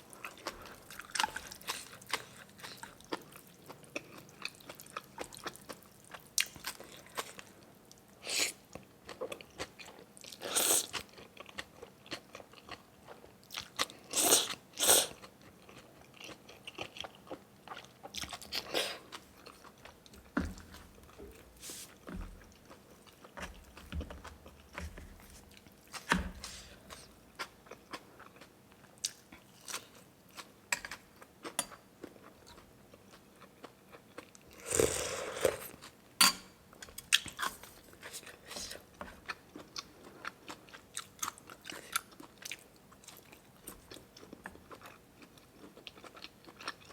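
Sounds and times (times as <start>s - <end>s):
person chewing food: 0.0s - 36.0s, 36.7s - 46.9s.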